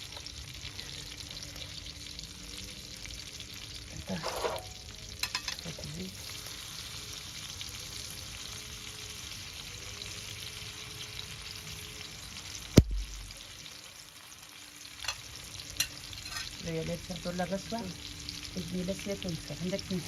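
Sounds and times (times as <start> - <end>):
cooking oil sizzling: 0.0 - 20.0
sharp knock: 12.8 - 13.3.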